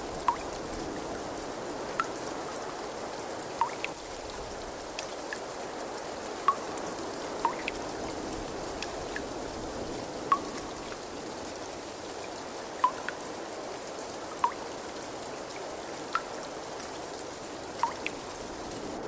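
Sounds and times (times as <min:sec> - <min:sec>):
water trickling: 0:00.0 - 0:19.0
water drops plinking: 0:00.2 - 0:00.6, 0:02.0 - 0:02.2, 0:03.6 - 0:04.0, 0:06.4 - 0:06.7, 0:07.4 - 0:07.8, 0:10.3 - 0:10.8, 0:12.8 - 0:13.2, 0:14.4 - 0:14.6, 0:16.2 - 0:16.4, 0:17.8 - 0:18.2.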